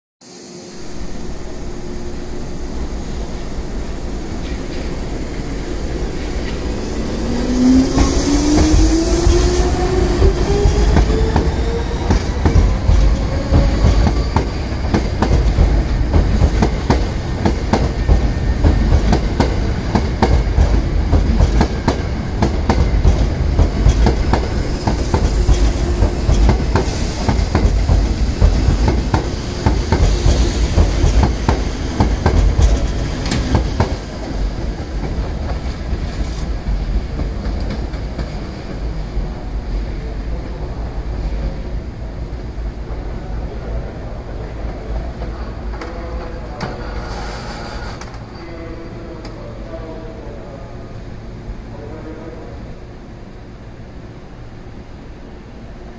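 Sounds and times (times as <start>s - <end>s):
train motor whine rising: 0.2s - 15.9s
train low rumble: 0.2s - 55.9s.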